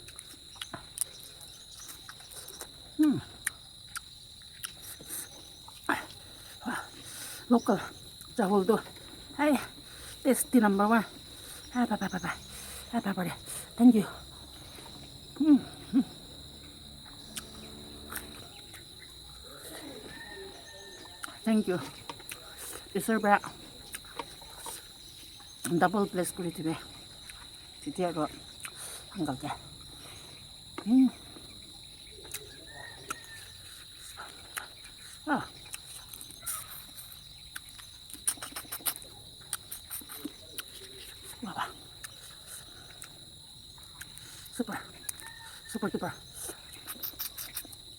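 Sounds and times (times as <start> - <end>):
crickets chirring: 0.0 - 47.9
low hoot-like hums: 5.3 - 22.5
person eating smacks: 33.8 - 41.4, 46.5 - 47.8
sliding mouth sound: 38.1 - 41.4, 46.4 - 47.8.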